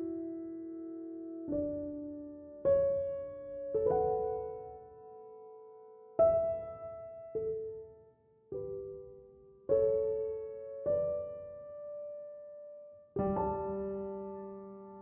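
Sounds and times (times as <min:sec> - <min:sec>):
slow calm piano: 0:00.0 - 0:15.0.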